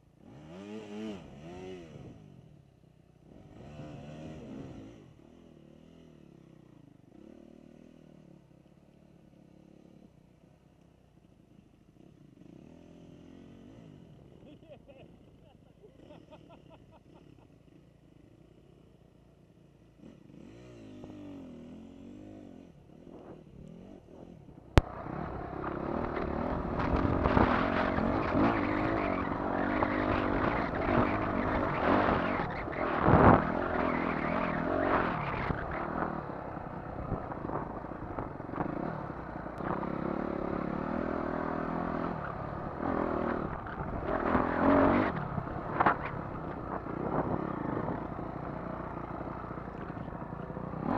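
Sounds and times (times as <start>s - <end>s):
dirt bike engine revving: 0.2s - 2.2s, 20.0s - 50.9s.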